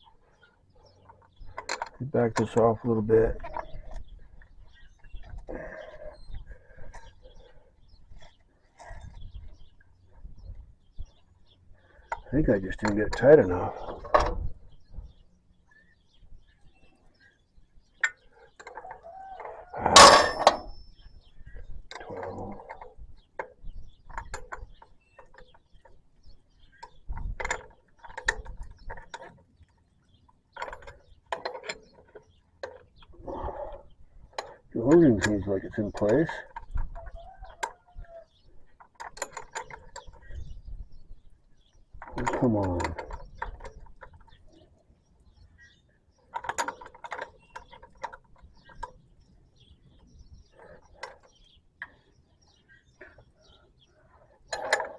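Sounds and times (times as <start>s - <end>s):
hand tools clinking on metal: 18.0s - 21.0s.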